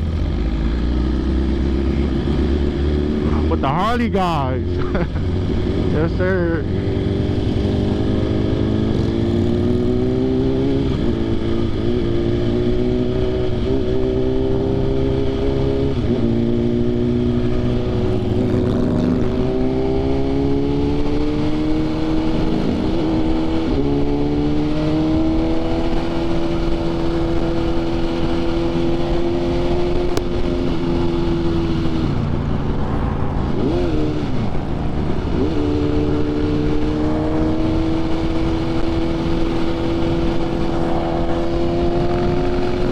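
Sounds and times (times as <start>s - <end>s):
motorcycle engine shifting gears: 4.6s - 42.9s
wind rushing: 17.3s - 25.6s, 27.8s - 42.9s.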